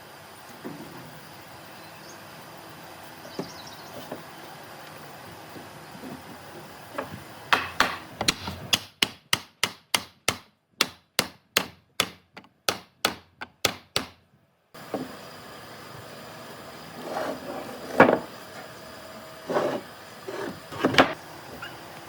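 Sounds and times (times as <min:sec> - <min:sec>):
hammer strikes: 0:07.5 - 0:14.2.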